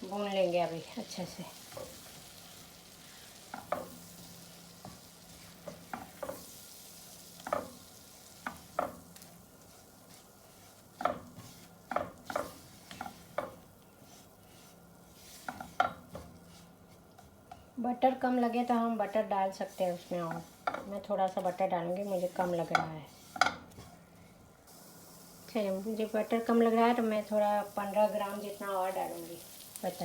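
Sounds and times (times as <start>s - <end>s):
faint sizzle: 0.0s - 30.0s
utensil scraping a frying pan: 1.6s - 17.7s, 19.0s - 24.0s.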